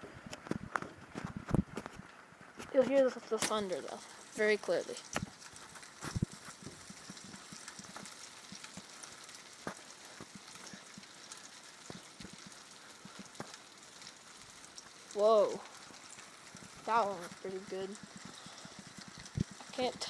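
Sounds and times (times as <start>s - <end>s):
heavy rain falling: 0.0s - 20.0s
raindrops clicking close by: 0.0s - 20.0s.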